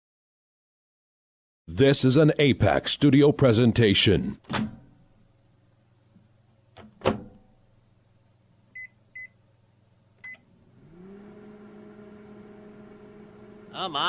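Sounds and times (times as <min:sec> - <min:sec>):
microwave door shutting: 0:04.4 - 0:05.0, 0:06.8 - 0:07.5
microwave oven humming: 0:04.5 - 0:14.0
microwave keypad beeps: 0:08.8 - 0:09.4, 0:10.2 - 0:10.5.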